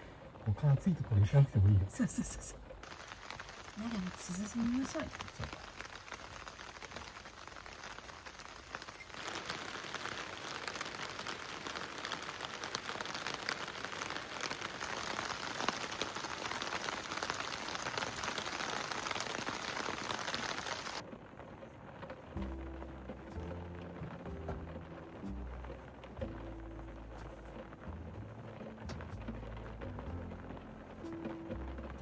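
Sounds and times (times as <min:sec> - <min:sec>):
rain falling: 0:00.0 - 0:32.0
music: 0:22.3 - 0:32.0.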